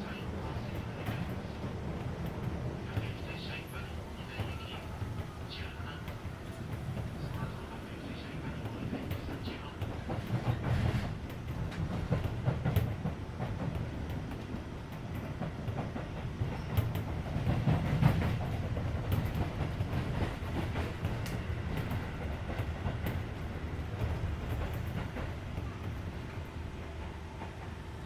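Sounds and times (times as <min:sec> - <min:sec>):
train wheels rumbling on rail: 0:00.0 - 0:28.0
wheels clicking over rail joints: 0:08.6 - 0:27.7.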